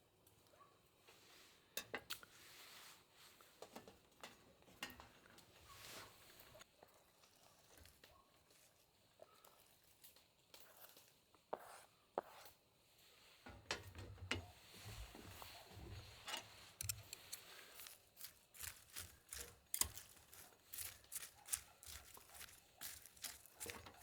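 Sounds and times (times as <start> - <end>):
small objects tapping and clicking: 16.8 - 24.0.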